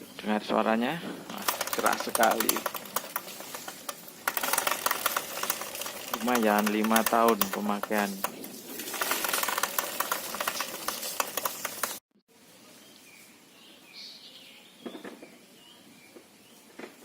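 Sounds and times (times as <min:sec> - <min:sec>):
motorcycle drive chain clattering: 0:01.3 - 0:12.0.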